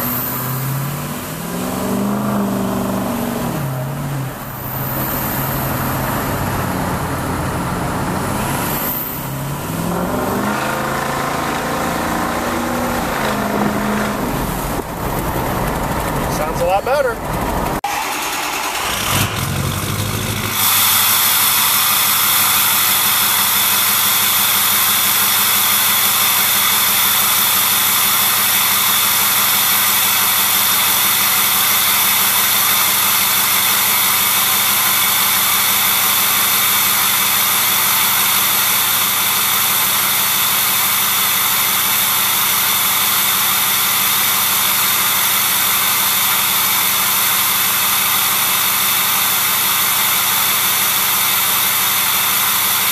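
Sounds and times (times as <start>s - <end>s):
diesel engine idling: 0.0s - 52.9s
high turbo hiss: 18.0s - 52.9s.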